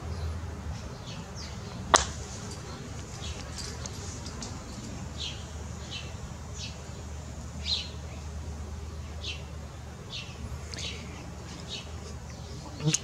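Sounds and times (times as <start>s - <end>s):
low steady hum: 0.0s - 13.0s
bird chirping: 0.1s - 13.0s.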